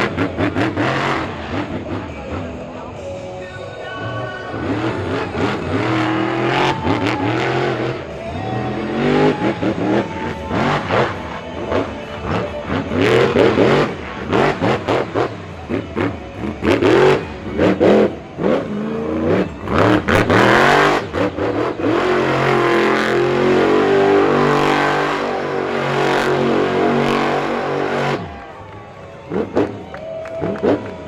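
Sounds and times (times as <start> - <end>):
monster truck engine revving: 0.0 - 3.3, 3.9 - 31.0.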